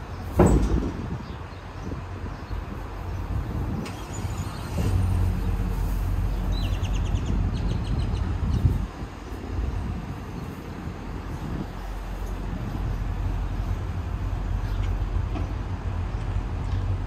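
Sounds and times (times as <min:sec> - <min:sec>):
vehicle engine humming: 0:00.0 - 0:17.0
bird chirping trill: 0:06.3 - 0:08.8.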